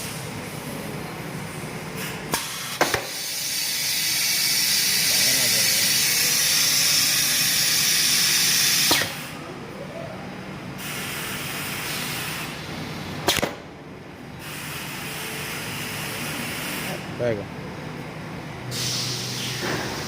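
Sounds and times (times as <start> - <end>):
welding machine hissing: 2.0 - 9.3, 10.8 - 12.7, 14.4 - 17.0, 18.7 - 20.0.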